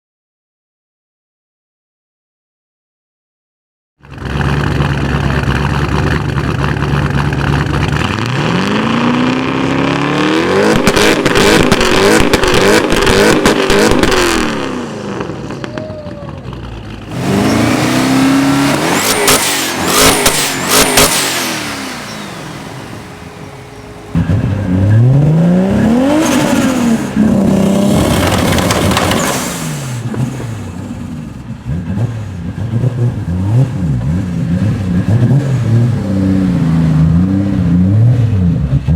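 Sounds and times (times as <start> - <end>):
exhaust cracks and pops: 4.0 - 8.4, 10.7 - 14.6, 28.0 - 30.4
car engines revving: 4.0 - 38.9.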